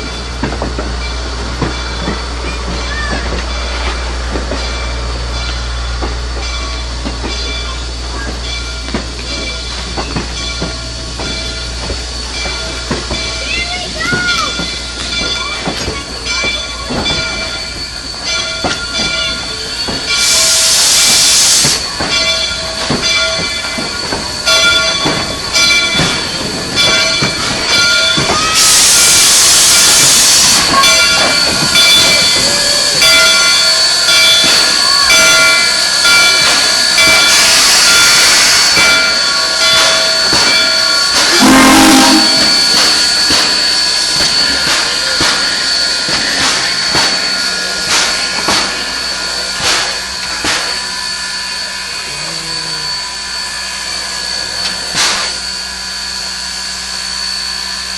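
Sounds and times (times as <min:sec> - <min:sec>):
steam locomotive working: 0:00.0 - 0:57.9
steam hissing: 0:07.4 - 0:57.9
short low tone: 0:41.3 - 0:42.8.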